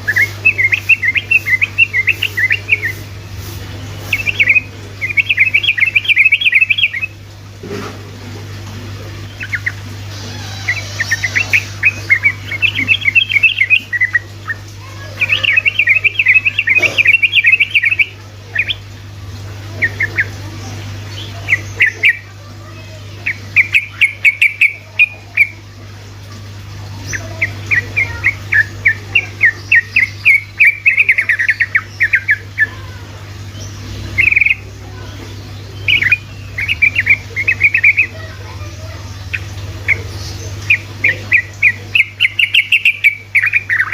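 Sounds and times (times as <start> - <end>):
bird chattering song: 0.0 - 7.2, 9.2 - 19.0, 19.6 - 25.7, 26.8 - 43.9
steady low hum: 0.0 - 43.9.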